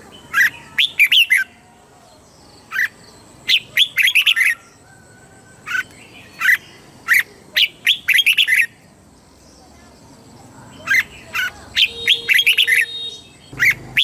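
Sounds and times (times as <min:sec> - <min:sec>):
bulbul singing whistled notes: 0:02.4 - 0:08.8, 0:10.8 - 0:14.0.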